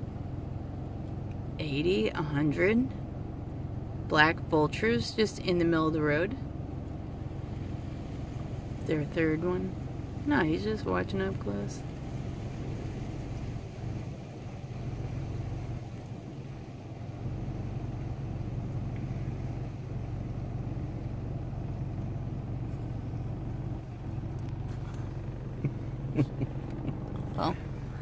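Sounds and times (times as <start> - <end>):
car engine humming: 0.0 - 28.0.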